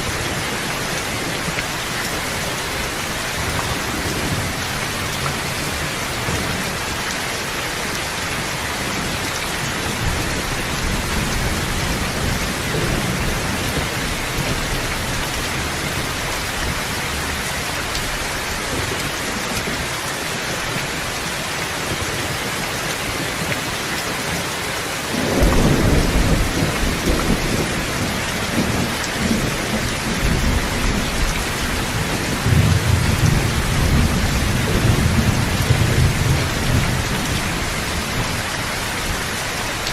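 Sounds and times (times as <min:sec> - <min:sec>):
heavy rain: 0:00.0 - 0:39.9
thunder rumbling: 0:25.1 - 0:39.9.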